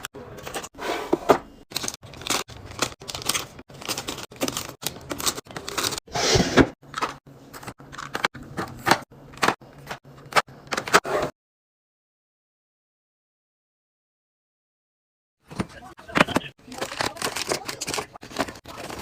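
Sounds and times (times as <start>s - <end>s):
plastic rustling and tearing: 1.7s - 6.1s, 16.6s - 19.0s.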